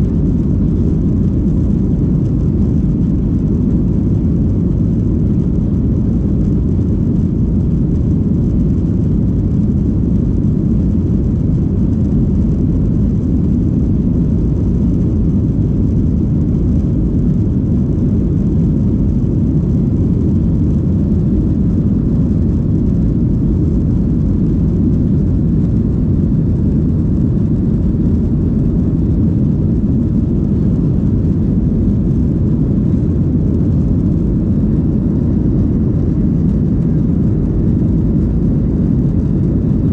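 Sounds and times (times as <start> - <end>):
airplane cabin engine roar: 0.0 - 39.9.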